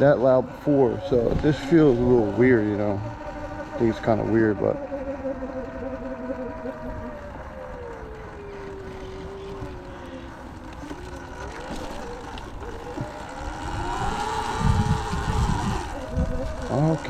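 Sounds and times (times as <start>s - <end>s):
man talking: 0.0s - 3.2s, 3.8s - 4.8s, 16.6s - 17.0s
electric motorbike whining: 0.0s - 17.0s
wind rumbling on microphone: 0.0s - 17.0s.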